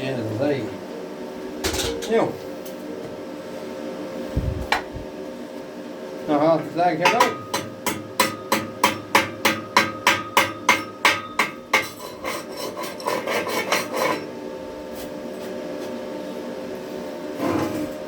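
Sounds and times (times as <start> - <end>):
faint hum: 0.2 - 6.0
hammer striking steel: 7.0 - 12.0.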